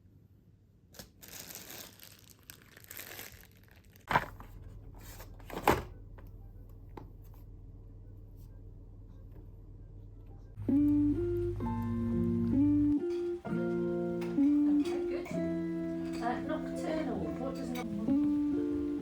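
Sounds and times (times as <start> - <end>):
crinkly rustling: 1.0 - 6.0
steady low hum: 4.2 - 19.0.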